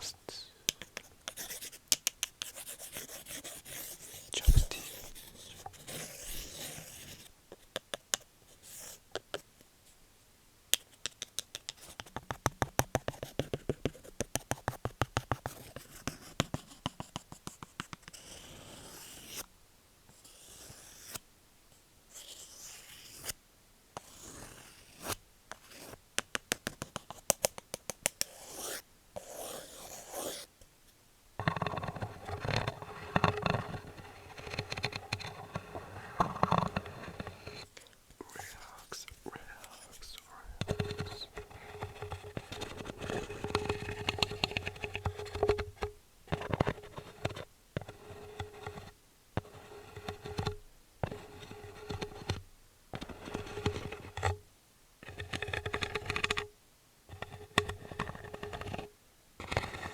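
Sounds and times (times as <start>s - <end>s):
wood scratching and scraping: 31.4s - 37.7s.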